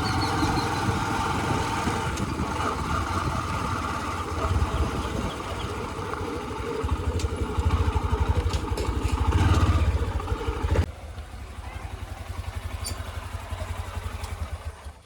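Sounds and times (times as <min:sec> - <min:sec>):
backhoe loader diesel engine running: 0:00.0 - 0:15.0.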